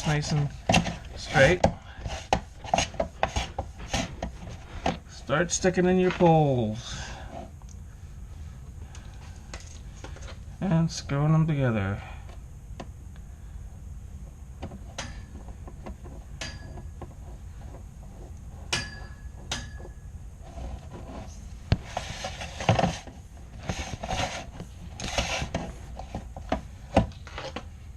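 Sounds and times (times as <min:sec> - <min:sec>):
scraping and rustling: 0:00.0 - 0:07.5, 0:14.7 - 0:27.7.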